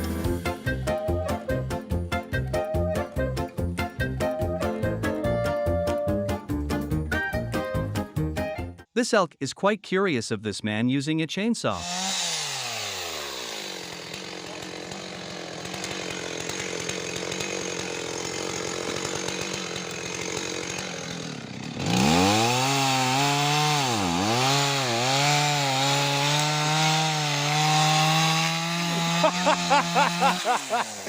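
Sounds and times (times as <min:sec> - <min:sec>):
chainsaw cutting wood: 0:11.8 - 0:31.0.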